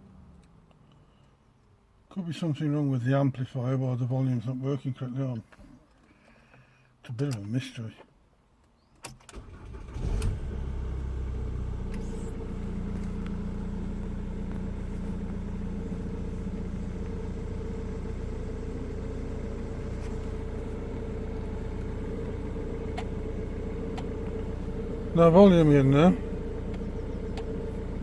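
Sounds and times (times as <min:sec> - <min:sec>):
car engine cranking and idling: 0:09.2 - 0:28.0.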